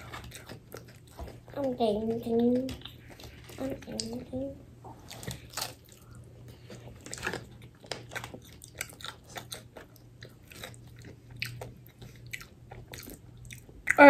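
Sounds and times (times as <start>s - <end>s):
crispy batter crunching: 5.0s - 14.0s.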